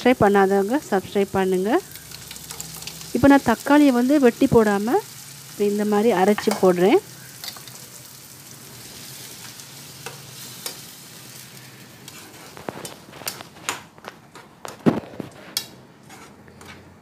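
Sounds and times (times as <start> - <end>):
onions sizzling in oil: 0.0 - 13.6.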